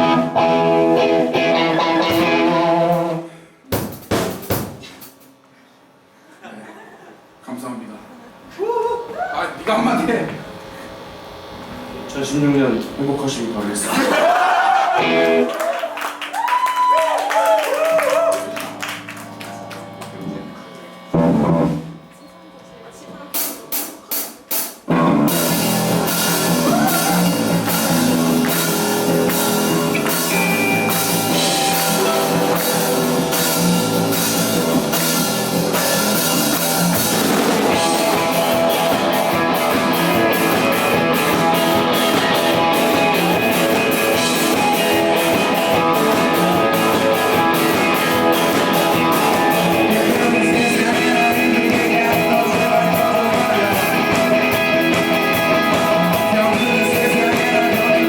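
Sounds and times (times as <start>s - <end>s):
live rock band playing: 0.0s - 3.2s, 14.9s - 16.3s, 17.4s - 22.1s, 23.4s - 58.0s
drum hits: 3.7s - 5.1s, 21.1s - 22.1s, 23.4s - 58.0s.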